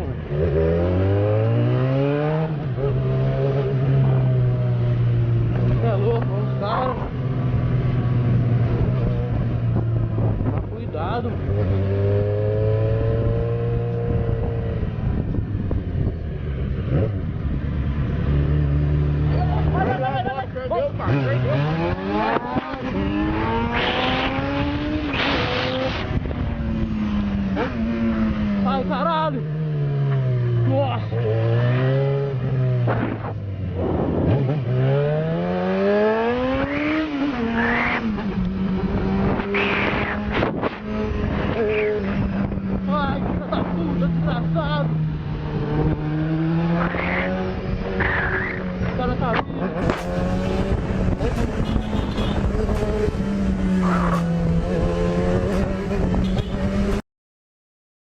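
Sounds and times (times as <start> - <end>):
motorcycle engine accelerating: 0.0 - 57.0
road noise: 0.0 - 57.0
motorcycle engine running: 48.6 - 57.0.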